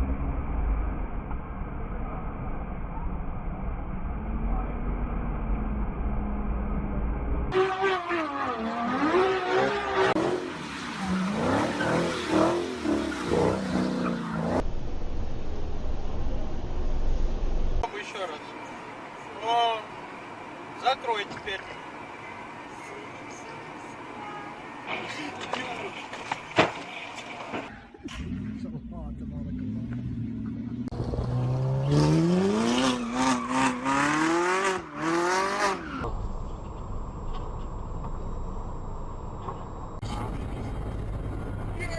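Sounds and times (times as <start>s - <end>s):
car engine revving: 0.0s - 14.7s, 28.0s - 41.9s
tyres skidding and squealing: 7.5s - 14.7s, 17.8s - 41.9s.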